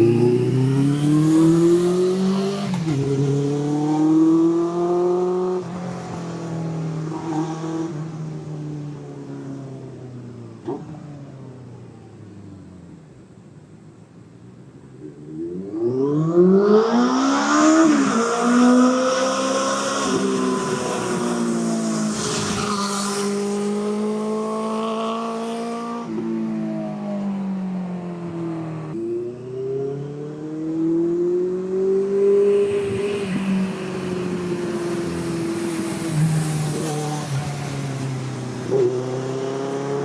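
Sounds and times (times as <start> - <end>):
motorcycle engine revving: 0.0 - 5.9.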